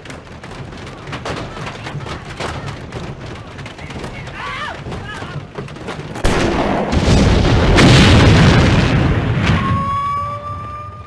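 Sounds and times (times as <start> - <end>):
explosion blast and rumble: 6.2 - 11.0
high siren-like tone: 9.4 - 11.0.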